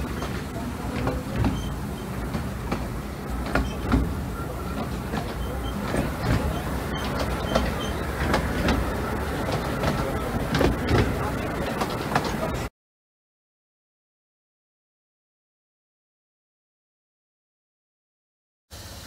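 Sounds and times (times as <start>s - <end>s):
train carriage rumbling: 0.0s - 12.7s
wheels clicking over rail joints: 0.0s - 12.7s.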